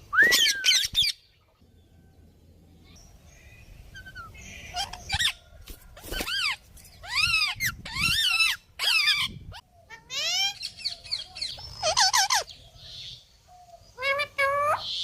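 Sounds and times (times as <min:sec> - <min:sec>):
parrot calling: 0:04.0 - 0:05.5, 0:06.2 - 0:12.5.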